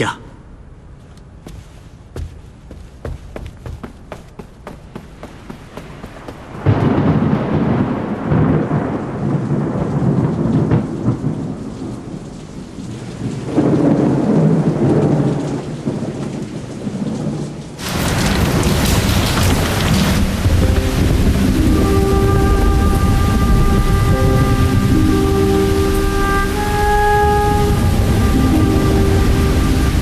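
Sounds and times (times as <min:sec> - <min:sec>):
rolling thunder: 0:04.5 - 0:30.0
heavy rain hissing: 0:17.8 - 0:30.0.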